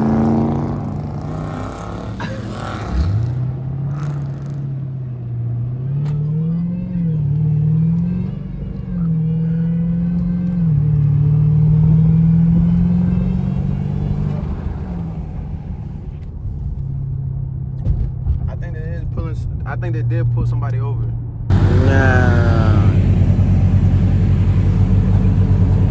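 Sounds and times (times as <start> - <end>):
car engine revving: 0.0 - 15.9, 21.5 - 25.9.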